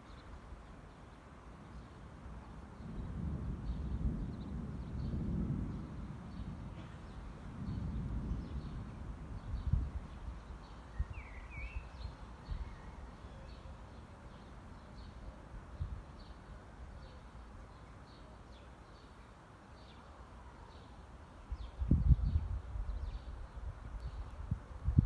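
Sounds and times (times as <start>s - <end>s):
bird chirping: 9.4s - 15.3s.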